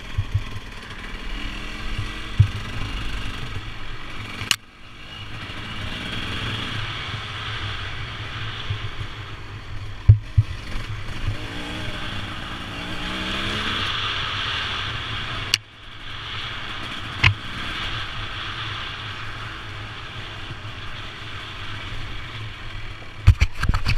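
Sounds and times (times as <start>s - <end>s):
motorbike engine running: 0.0s - 7.0s
steady noise haze: 0.0s - 23.3s
sharp knocks: 2.0s - 2.7s.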